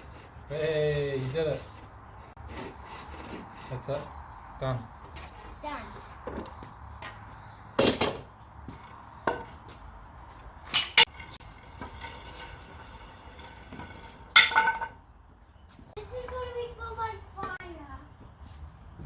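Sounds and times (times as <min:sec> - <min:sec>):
wood pieces and tools clattering: 0:10.6 - 0:15.0.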